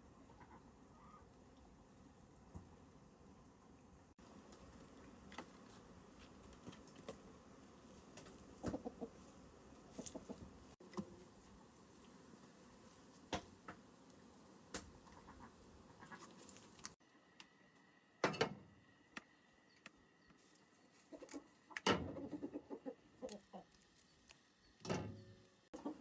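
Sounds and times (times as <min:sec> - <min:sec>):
chickens clucking: 0:00.2 - 0:01.3, 0:07.9 - 0:11.0, 0:20.9 - 0:23.8, 0:25.7 - 0:26.0.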